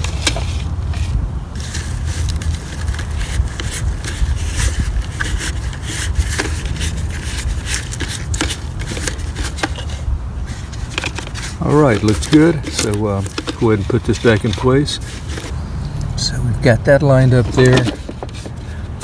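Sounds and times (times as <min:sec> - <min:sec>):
hard plastic clicking and scraping: 0:00.0 - 0:16.1, 0:17.1 - 0:19.0
steady low rumble: 0:15.5 - 0:18.9.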